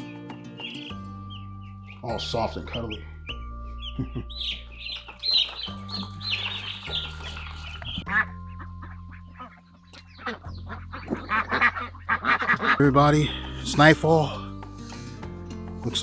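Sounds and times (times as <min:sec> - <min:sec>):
background music with low notes: 0:00.0 - 0:16.0
chicks peeping: 0:03.8 - 0:08.2.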